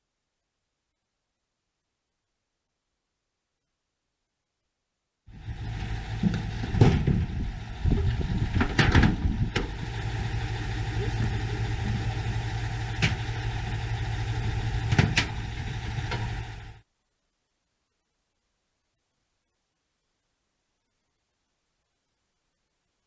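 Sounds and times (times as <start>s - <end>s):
vehicle engine idling: 5.3s - 16.8s
sharp knocks and clatters: 6.1s - 7.3s, 8.5s - 9.7s, 14.8s - 15.4s.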